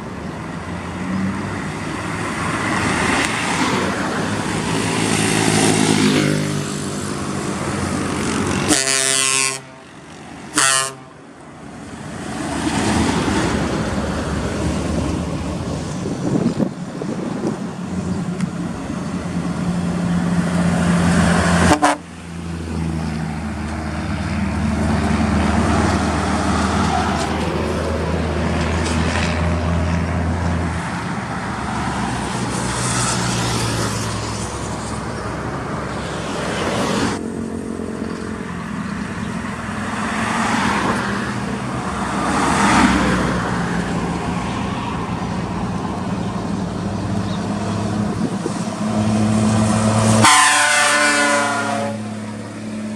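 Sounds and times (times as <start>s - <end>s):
heavy trucks running: 0.0s - 52.9s
vehicle horns: 8.6s - 9.9s, 10.5s - 11.2s, 21.6s - 22.1s, 49.8s - 52.4s.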